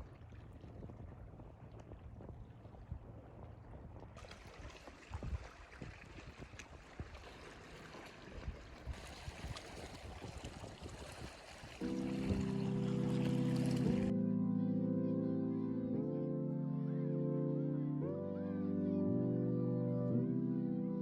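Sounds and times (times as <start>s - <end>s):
water splashing around kayak: 0.0s - 14.1s
wind rumbling on microphone: 0.0s - 14.1s.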